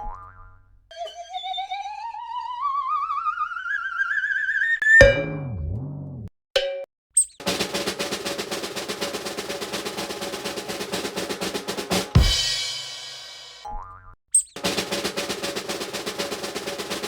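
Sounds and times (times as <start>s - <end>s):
rising tone: 0.9s - 6.3s
cymbal crash: 7.4s - 13.6s
snare drum roll: 7.4s - 13.6s, 14.6s - 17.0s.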